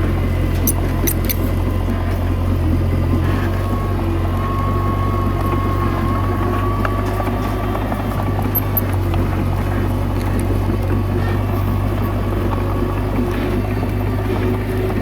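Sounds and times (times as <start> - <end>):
bulldozer diesel engine running: 0.0 - 15.0.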